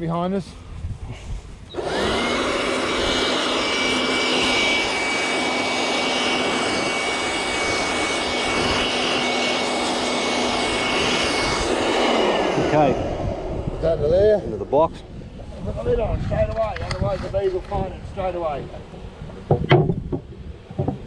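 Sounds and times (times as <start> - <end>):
rush of air: 0.6 - 3.8, 9.7 - 16.4
blower motor whine: 0.6 - 16.0.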